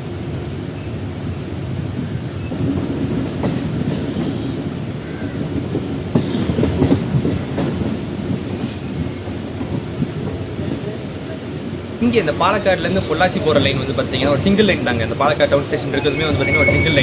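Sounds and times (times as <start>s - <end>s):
train rumbling: 0.0s - 17.0s
wheels clacking over rail joints: 1.9s - 11.0s.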